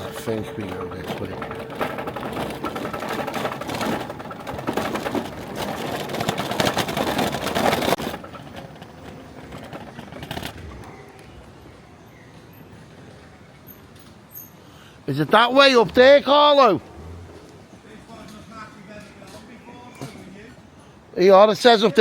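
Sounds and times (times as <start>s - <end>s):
car engine clatter and rumble: 0.0s - 12.2s.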